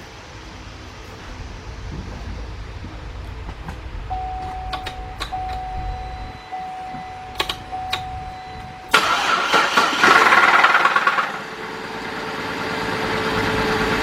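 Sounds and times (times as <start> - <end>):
faint steady tone: 0.0 - 10.3
car engine cranking and idling: 0.0 - 14.0
sharp clicks: 3.5 - 10.2.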